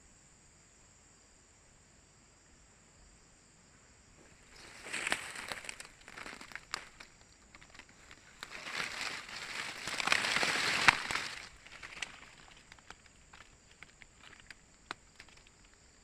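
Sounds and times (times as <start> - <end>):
foliage rustling and snapping: 4.2 - 16.0.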